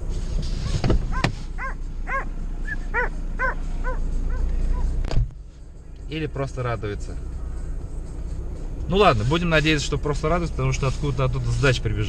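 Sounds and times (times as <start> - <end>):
steady low rumble: 0.0 - 12.0
dog barking: 1.1 - 2.3, 2.9 - 4.9.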